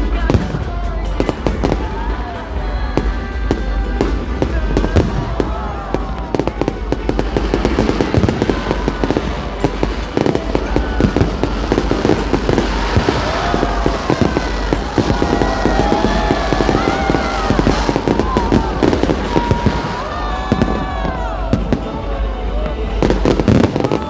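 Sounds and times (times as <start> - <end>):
fireworks crackles and bangs: 0.0 - 24.0
whistling fireworks: 0.0 - 24.0.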